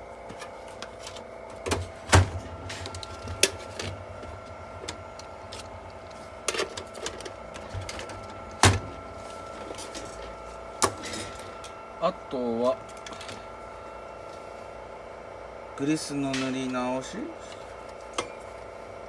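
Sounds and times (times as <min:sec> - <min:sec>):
steady hum: 0:00.0 - 0:19.0
clicks and knocks of tools: 0:00.3 - 0:11.8, 0:12.9 - 0:13.5, 0:16.3 - 0:16.8, 0:17.4 - 0:18.6.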